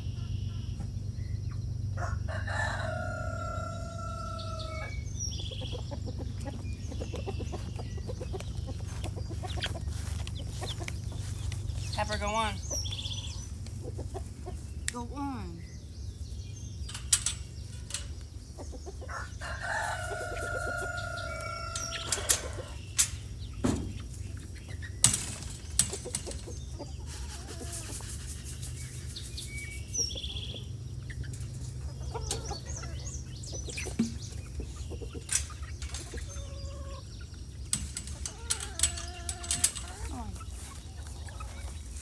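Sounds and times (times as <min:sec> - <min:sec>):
chickens clucking: 0:00.0 - 0:42.0
rooster crowing: 0:02.0 - 0:05.0, 0:19.0 - 0:22.8.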